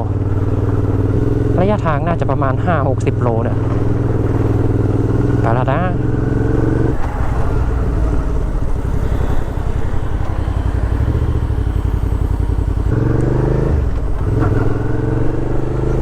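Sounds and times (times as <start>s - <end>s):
motorcycle engine accelerating: 0.0s - 16.0s
road and wind noise: 0.0s - 16.0s.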